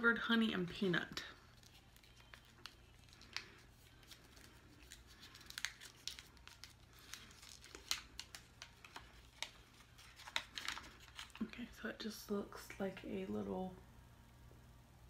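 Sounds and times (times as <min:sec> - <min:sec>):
candy wrapper crinkling: 0:01.1 - 0:11.6.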